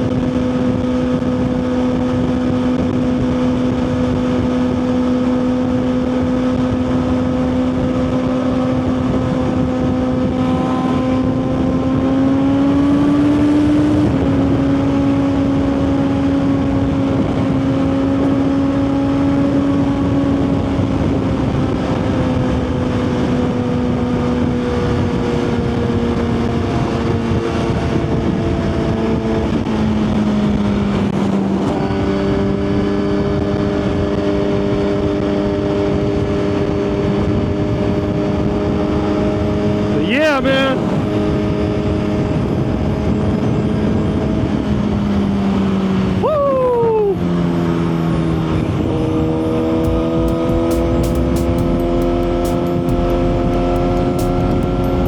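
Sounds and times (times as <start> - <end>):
motorcycle engine cruising: 0.0 - 40.0, 47.3 - 55.0.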